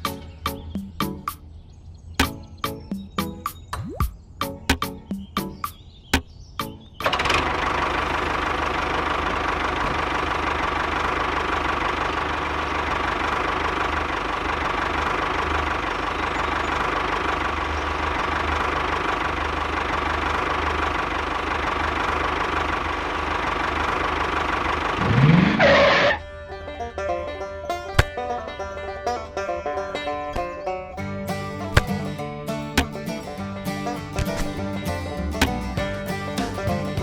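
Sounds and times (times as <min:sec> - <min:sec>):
engine running and revving: 0:07.0 - 0:26.2.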